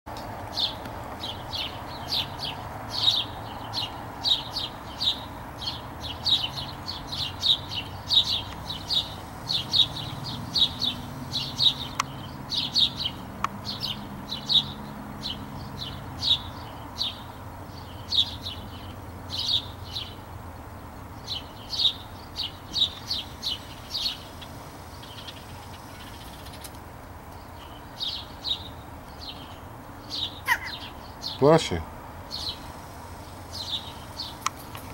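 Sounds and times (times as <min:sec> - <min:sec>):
bird chirping: 0:00.2 - 0:34.9.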